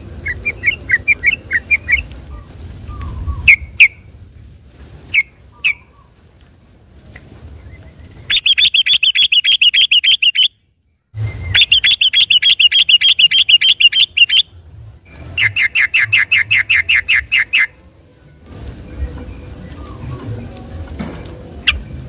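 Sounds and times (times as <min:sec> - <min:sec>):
bird singing fast trills: 0:00.0 - 0:04.0, 0:07.6 - 0:17.8.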